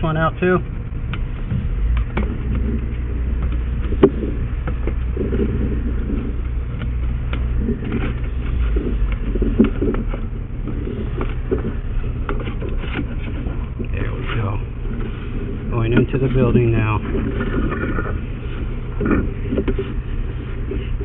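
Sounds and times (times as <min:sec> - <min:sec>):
low mechanical engine rumble: 0:00.0 - 0:21.0.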